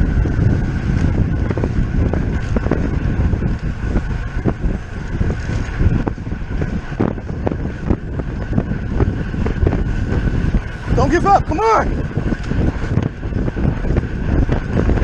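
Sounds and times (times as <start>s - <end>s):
bicycle freewheel ticks: 0.0s - 15.0s
bicycle wheel whir: 0.0s - 15.0s
wind buffeting microphone: 0.0s - 15.0s.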